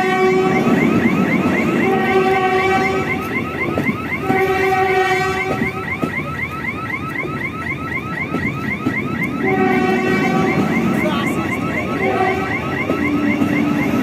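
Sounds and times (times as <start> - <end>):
train horn blasts: 0.0 - 0.9, 1.7 - 3.3, 4.2 - 5.8, 9.4 - 14.0.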